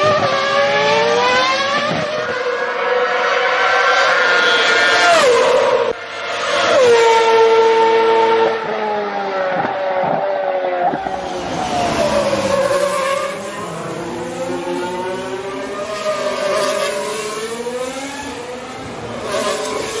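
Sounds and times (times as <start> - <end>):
race car engines revving: 0.0 - 20.0.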